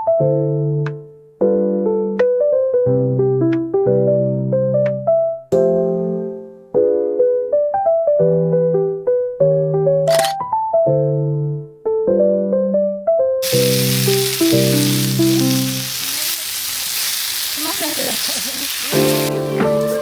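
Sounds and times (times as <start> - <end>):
background piano music: 0.0 - 16.1, 18.9 - 20.0
steady sizzling hiss: 13.4 - 20.0.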